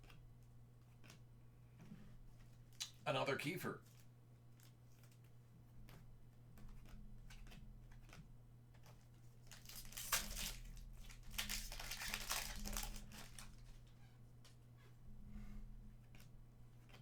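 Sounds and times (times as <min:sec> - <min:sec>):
wrapper crinkling and tearing: 0:09.4 - 0:13.7.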